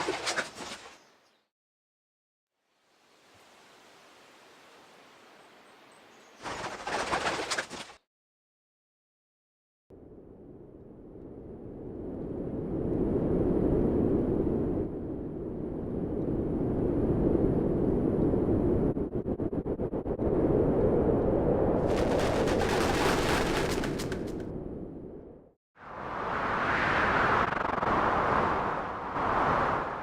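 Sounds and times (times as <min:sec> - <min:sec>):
rapid flutter: 0:06.4 - 0:08.0, 0:21.8 - 0:24.5
hissing crackle: 0:21.8 - 0:24.4.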